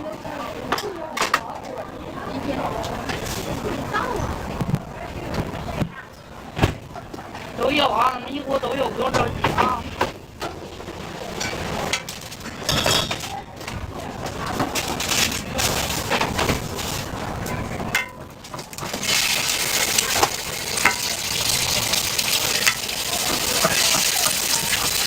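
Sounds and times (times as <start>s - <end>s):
metal utensils scraping a pan: 11.4s - 13.3s, 18.0s - 25.0s
food sizzling in a pan: 18.6s - 25.0s.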